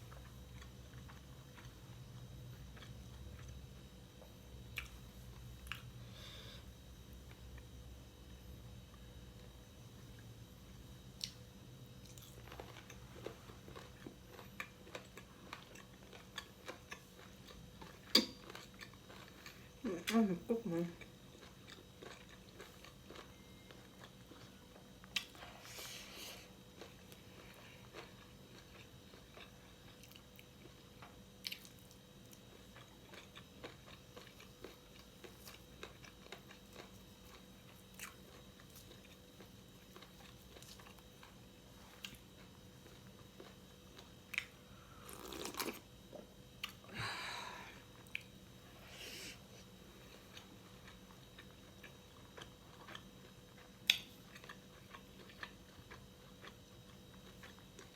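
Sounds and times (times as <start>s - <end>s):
person chewing crunchy food: 0.0s - 7.9s, 11.0s - 57.9s.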